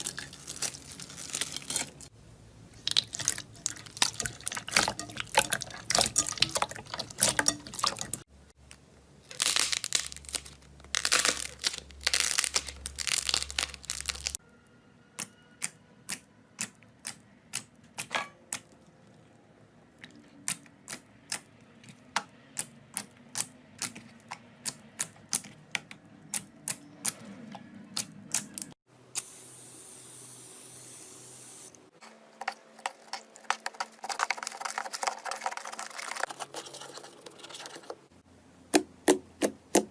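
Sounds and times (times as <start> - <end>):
slime crackling and squelching: 0.0 - 2.1, 2.7 - 8.2, 9.2 - 14.4, 32.4 - 37.8.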